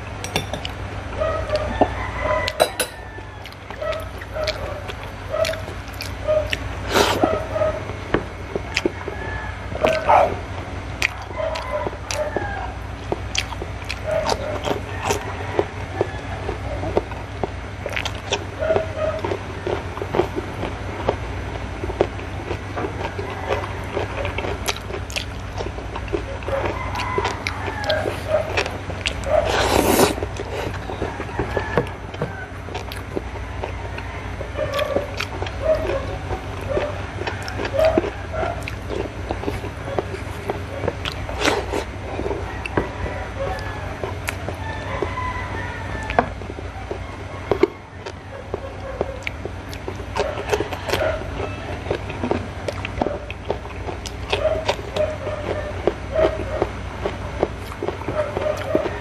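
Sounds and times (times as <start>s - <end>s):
chewing and lip smacking: 0.0s - 59.0s
steady low hum: 0.0s - 59.0s.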